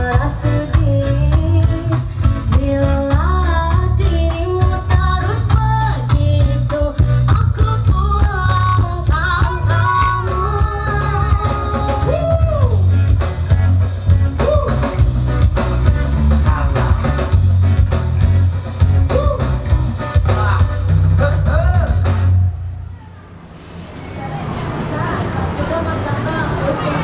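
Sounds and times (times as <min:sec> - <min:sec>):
song over loudspeakers: 0:00.0 - 0:17.4
heavy pulsing bass: 0:00.0 - 0:22.8.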